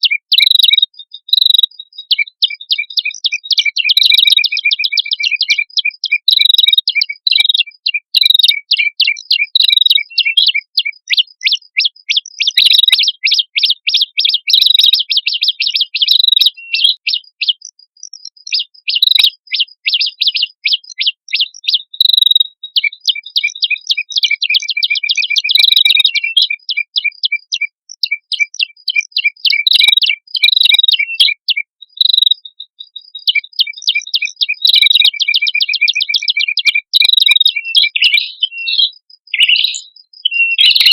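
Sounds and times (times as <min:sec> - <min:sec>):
bird chattering trills: 0:00.0 - 0:32.5, 0:33.2 - 0:40.9.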